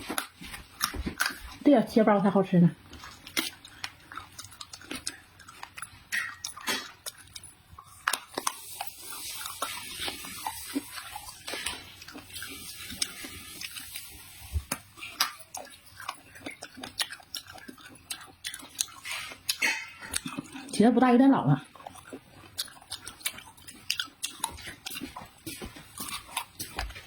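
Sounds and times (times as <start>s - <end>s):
chewing: 0.0s - 1.7s, 2.8s - 20.9s, 21.5s - 27.0s
utensils clicking against dish: 18.9s - 20.4s.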